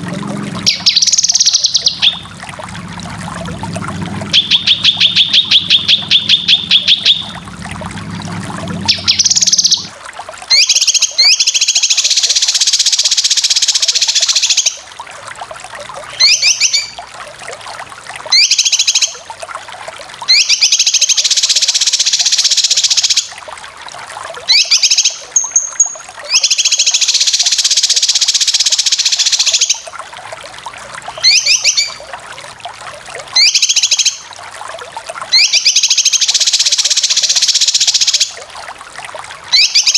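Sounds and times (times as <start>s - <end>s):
songbird chattering: 0.6s - 2.2s, 4.4s - 7.3s, 8.9s - 9.9s.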